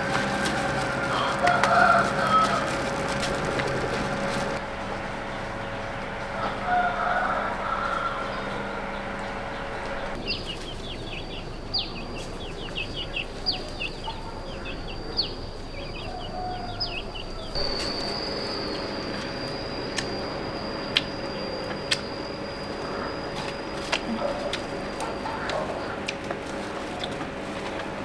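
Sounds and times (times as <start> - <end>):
birds chirping: 0.0 - 4.6, 8.3 - 26.2
steady high-pitched whine: 17.6 - 26.0.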